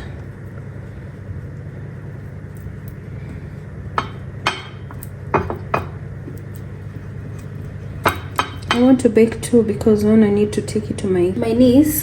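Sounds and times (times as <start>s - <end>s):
steady low hum: 0.0s - 12.0s
utensils and dishes clinking: 8.0s - 9.0s.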